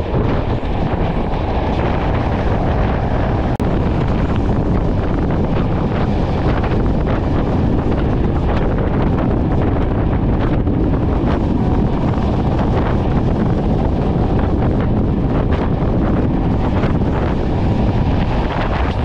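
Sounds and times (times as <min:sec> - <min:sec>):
moving train rumble: 0:00.0 - 0:19.0
wind buffeting microphone: 0:00.0 - 0:19.0.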